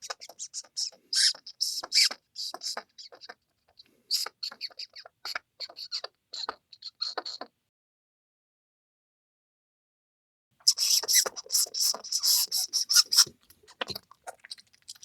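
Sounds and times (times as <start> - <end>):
mouse squeaking: 0.0 - 3.4, 4.1 - 7.5, 10.6 - 15.0.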